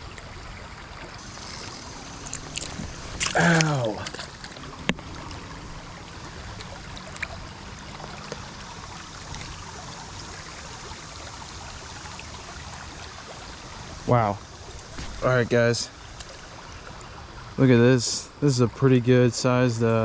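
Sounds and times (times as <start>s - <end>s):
creek water over rocks: 0.0s - 20.0s.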